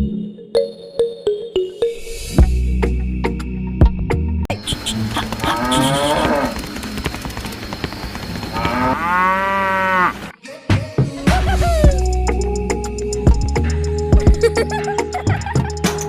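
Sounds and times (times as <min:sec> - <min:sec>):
cow mooing: 0:04.9 - 0:06.6, 0:08.5 - 0:10.3.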